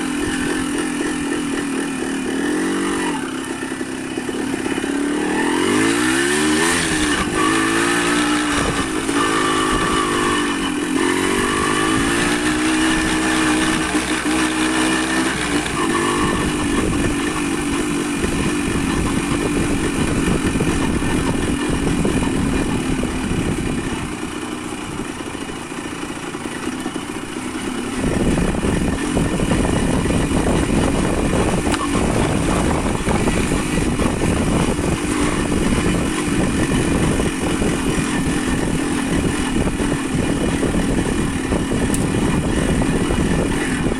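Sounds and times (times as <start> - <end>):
motorcycle engine accelerating: 0.0 - 43.9
steady rushing noise: 27.1 - 43.9.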